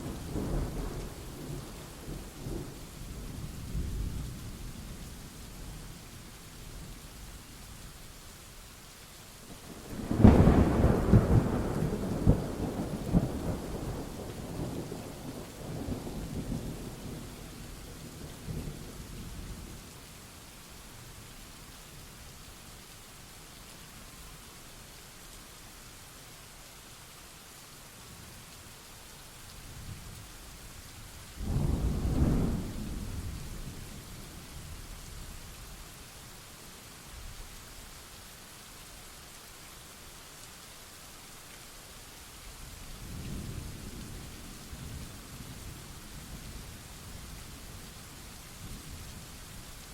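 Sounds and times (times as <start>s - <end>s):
steady rain: 0.0s - 49.9s
thunderclap with rolling rumble: 9.9s - 19.6s, 31.4s - 34.9s.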